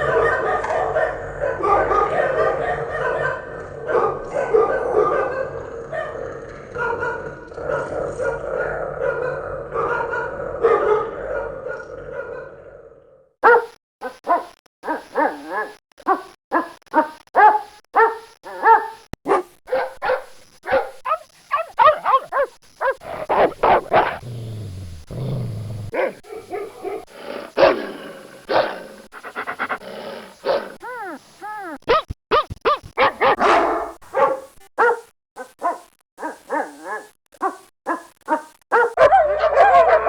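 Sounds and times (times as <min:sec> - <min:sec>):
dog barking: 0:00.0 - 0:07.4, 0:09.0 - 0:12.5, 0:13.4 - 0:24.3, 0:25.9 - 0:40.0
dog growling: 0:00.0 - 0:13.3, 0:20.7 - 0:32.1, 0:33.0 - 0:39.0
dog whining: 0:30.8 - 0:34.0.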